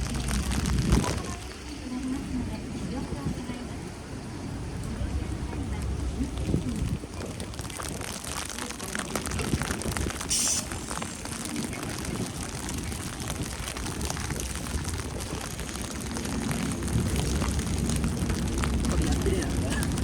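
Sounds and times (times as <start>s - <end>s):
light crackling: 0.0s - 2.2s, 4.8s - 20.0s
low rumble: 0.0s - 20.0s
short hiss: 10.3s - 10.8s.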